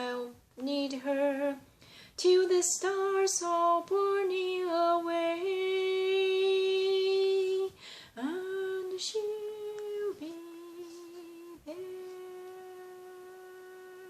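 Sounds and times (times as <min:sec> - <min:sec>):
woman breathing: 0:01.6 - 0:02.2, 0:07.7 - 0:08.2.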